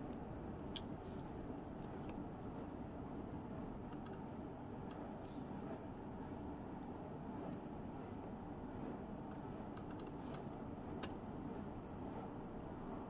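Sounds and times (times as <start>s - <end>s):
light sharp clicks and taps: 0.0s - 6.9s, 9.2s - 11.2s, 12.6s - 13.0s
steady low hum: 0.0s - 13.0s.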